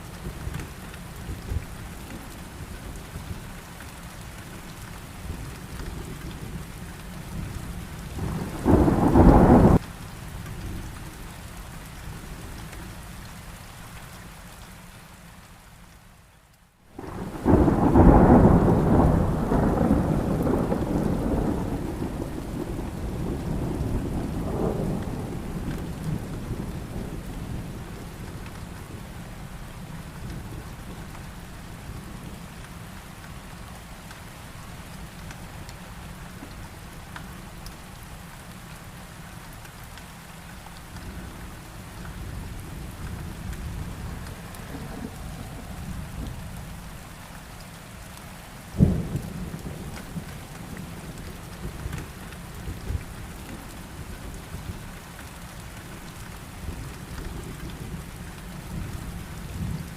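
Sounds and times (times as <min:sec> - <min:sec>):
heavy rain: 0:00.0 - 0:59.9
thunder rumbling: 0:05.3 - 0:09.8, 0:17.0 - 0:31.2, 0:41.1 - 0:47.1, 0:48.7 - 0:54.8.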